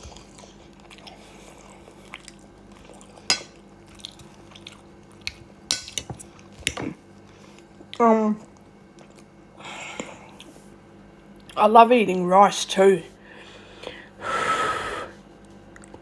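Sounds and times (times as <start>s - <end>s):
chewing: 0.0s - 9.4s.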